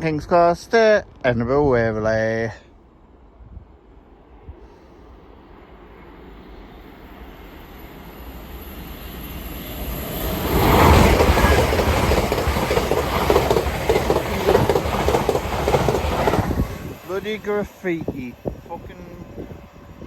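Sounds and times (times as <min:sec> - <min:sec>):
train passing at speed: 0:02.8 - 0:20.0
wheels clattering over rails: 0:10.3 - 0:17.2.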